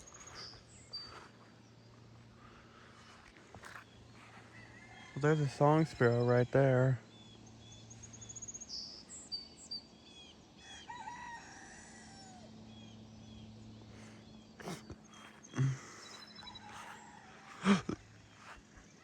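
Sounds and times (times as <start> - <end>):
small birds chirping: 0.0 - 19.0
sparrow trilling song: 0.0 - 19.0
faint rooster crowing: 2.3 - 6.8, 10.5 - 19.0.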